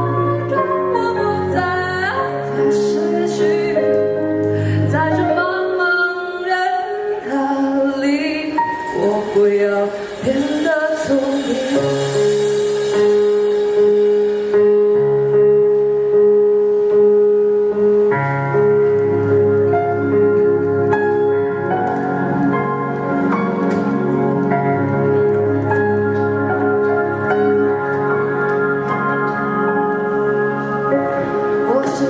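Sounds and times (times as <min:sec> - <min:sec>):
woman singing: 0:00.0 - 0:12.6, 0:31.6 - 0:32.0
instrumental backing music: 0:00.0 - 0:32.0.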